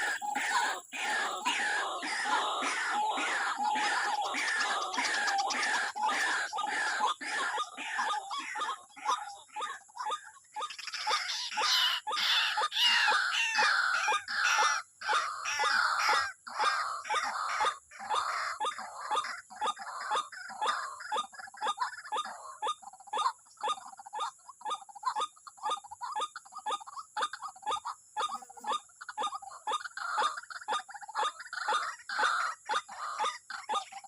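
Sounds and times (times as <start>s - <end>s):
waterhen calling harsh notes: 0.0s - 9.8s, 10.7s - 18.5s.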